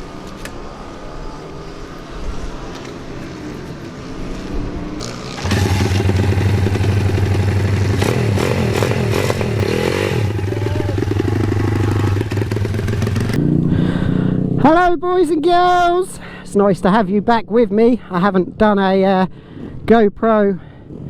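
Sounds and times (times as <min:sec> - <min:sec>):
motorbike engine running: 0:05.0 - 0:14.5.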